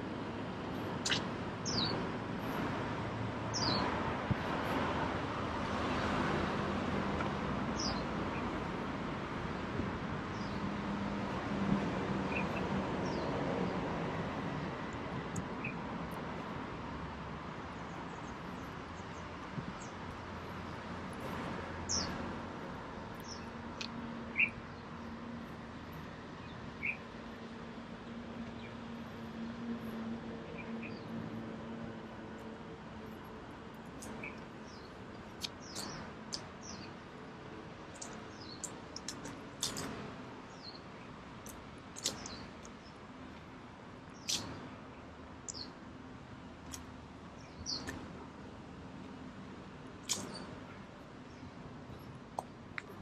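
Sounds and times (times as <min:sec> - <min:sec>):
street ambience hum: 0:00.0 - 0:53.0
bird chirping: 0:01.0 - 0:02.0, 0:26.4 - 0:27.0, 0:34.0 - 0:36.9, 0:42.0 - 0:43.0, 0:44.1 - 0:44.6, 0:45.5 - 0:45.8, 0:47.4 - 0:48.0
birds chirping: 0:01.0 - 0:02.6, 0:03.5 - 0:04.0, 0:07.8 - 0:08.4, 0:21.2 - 0:22.2, 0:23.1 - 0:25.2, 0:26.4 - 0:27.0, 0:33.9 - 0:37.0, 0:37.9 - 0:43.0, 0:44.0 - 0:45.8, 0:47.4 - 0:48.0
sharp click: 0:50.0 - 0:50.5.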